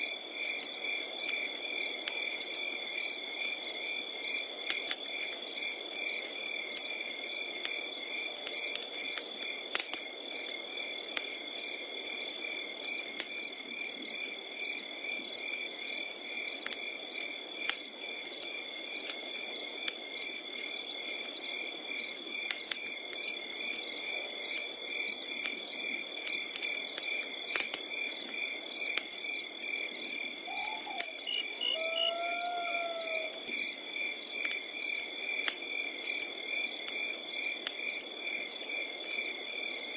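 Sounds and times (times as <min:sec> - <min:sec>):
campfire crackling and popping: 0:00.0 - 0:39.9
crickets chirping: 0:00.0 - 0:39.9
insect trill: 0:23.2 - 0:39.9
animal call: 0:30.4 - 0:33.4.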